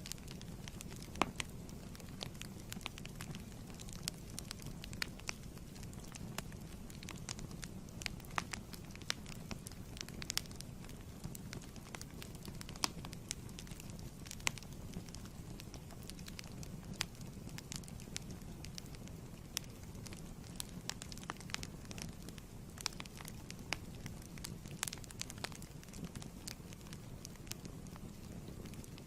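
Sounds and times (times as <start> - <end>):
fire crackling: 0.0 - 29.0
low rumble of flames: 0.0 - 29.0.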